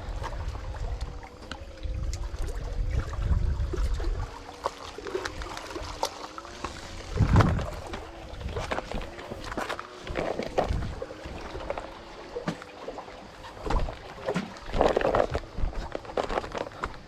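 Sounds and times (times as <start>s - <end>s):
wind buffeting microphone: 0.0s - 4.5s, 6.8s - 12.0s
water splash: 0.0s - 15.6s
faint wavering hum: 0.0s - 17.0s
water sloshing: 0.0s - 17.0s.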